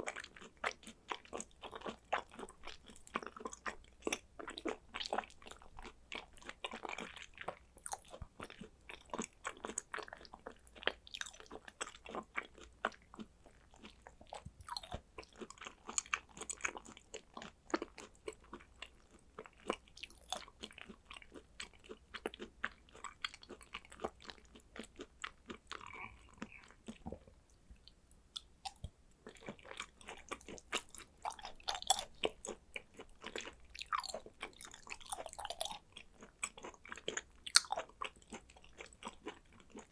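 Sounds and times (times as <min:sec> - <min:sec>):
wet chewing mouth clicks: 0:00.0 - 0:39.9.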